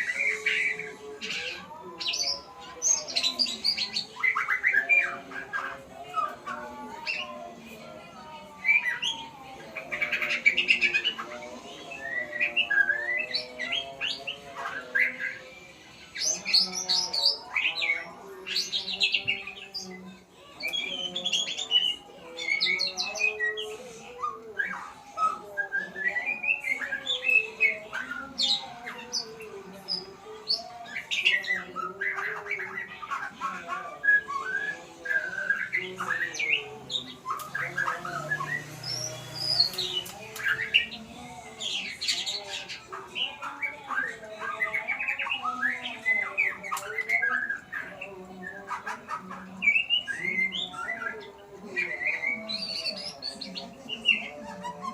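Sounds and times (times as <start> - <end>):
songbird singing: 0.0 - 54.9.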